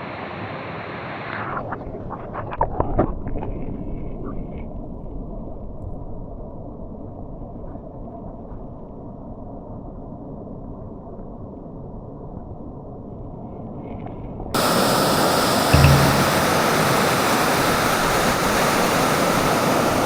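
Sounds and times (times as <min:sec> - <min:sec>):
muffled rushing stream: 0:14.6 - 0:20.0.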